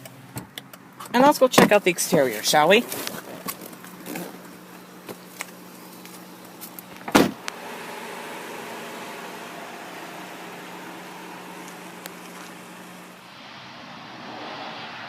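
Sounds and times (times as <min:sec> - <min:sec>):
power window motor running: 0:07.3 - 0:13.2.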